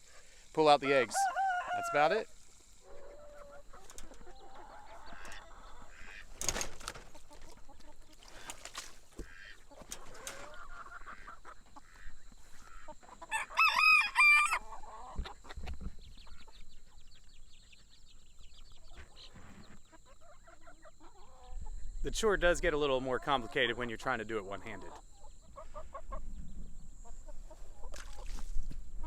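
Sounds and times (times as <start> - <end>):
chickens clucking: 0.0 - 29.0
rooster crowing: 0.8 - 3.4, 13.3 - 15.0.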